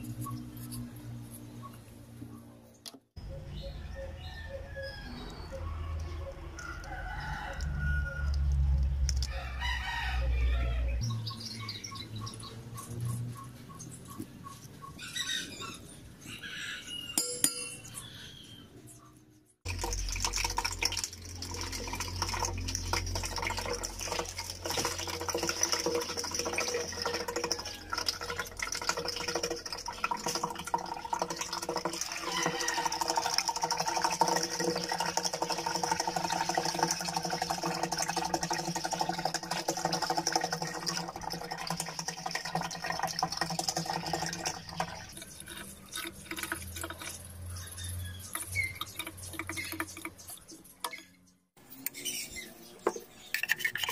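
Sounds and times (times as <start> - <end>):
spoon clinking on glass bowl: 17.2 - 18.1
milk pouring into blender jar: 19.7 - 47.2.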